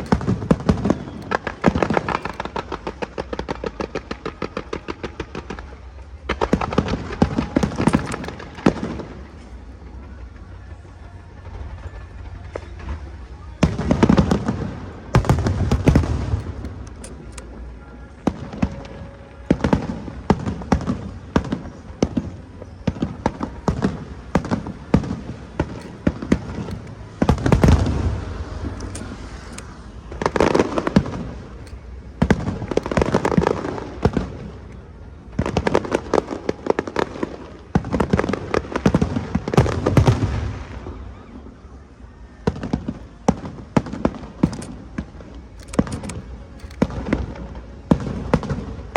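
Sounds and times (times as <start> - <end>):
fireworks crackling: 0.0 - 41.4
fireworks booming: 13.6 - 17.1, 18.3 - 29.3, 30.0 - 41.0.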